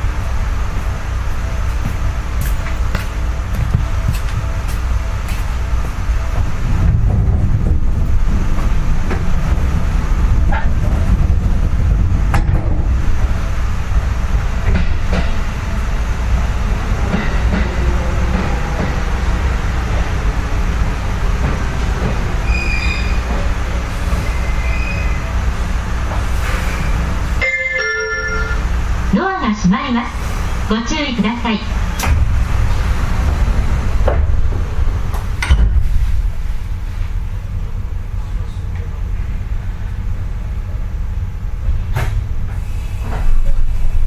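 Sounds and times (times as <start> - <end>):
train rumble and hum: 0.0 - 44.0
high-pitched tones: 27.4 - 28.7.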